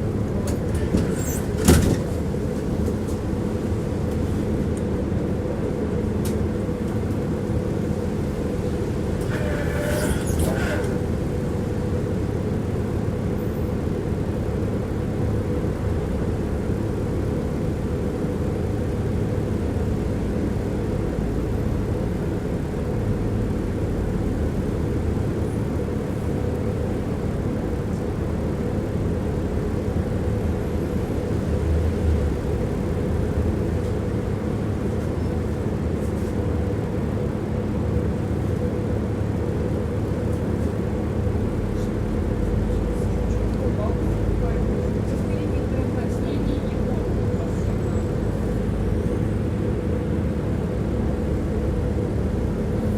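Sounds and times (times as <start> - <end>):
tram bump: 0.0 - 4.3, 6.2 - 12.8
tram wheels rumbling: 0.0 - 52.9.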